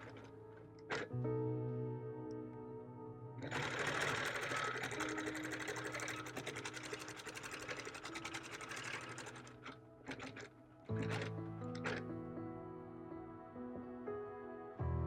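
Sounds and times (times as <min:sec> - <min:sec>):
quilting machine needle stitching: 0:00.0 - 0:00.3, 0:00.9 - 0:01.1, 0:03.4 - 0:12.0.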